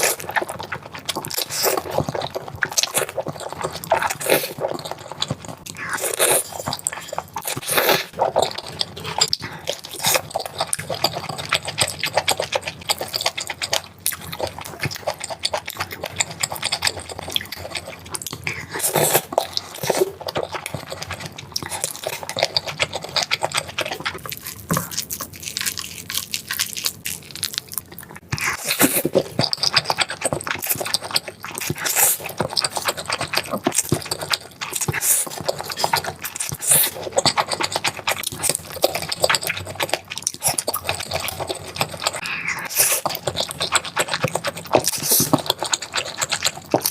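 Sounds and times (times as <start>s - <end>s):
chewing and crunching food: 0.0s - 46.9s.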